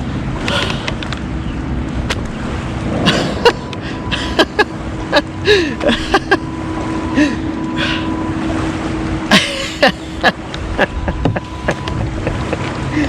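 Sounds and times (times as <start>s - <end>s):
faint steady whine: 0.0s - 13.0s
wind noise on microphone: 10.6s - 12.5s.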